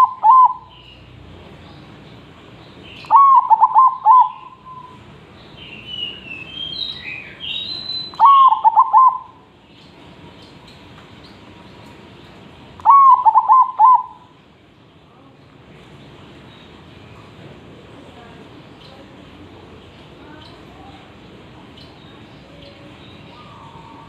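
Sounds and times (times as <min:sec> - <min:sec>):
dove cooing: 0:00.0 - 0:00.7, 0:03.1 - 0:05.0, 0:08.2 - 0:09.4, 0:12.8 - 0:14.3, 0:23.3 - 0:24.0
small birds chirping: 0:00.0 - 0:24.0.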